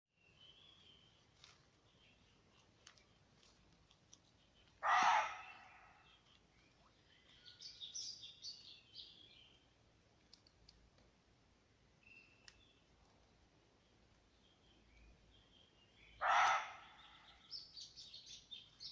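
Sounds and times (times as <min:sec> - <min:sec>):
birds chirping: 0:00.2 - 0:09.8, 0:12.0 - 0:18.9
faint clicks: 0:02.5 - 0:04.8, 0:10.2 - 0:11.2, 0:12.4 - 0:13.3
loud harsh animal cry: 0:04.8 - 0:05.9, 0:16.2 - 0:16.9.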